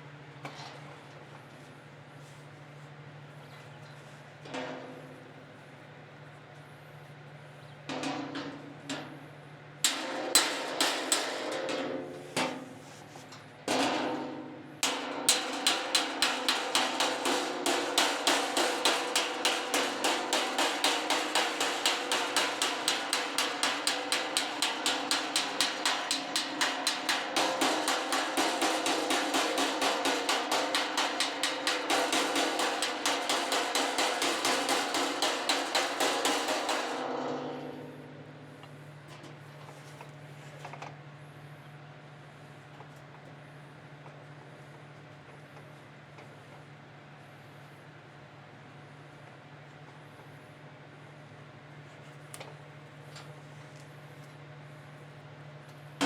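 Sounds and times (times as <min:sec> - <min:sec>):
hammer tapping steel fender: 0:09.9 - 0:39.9.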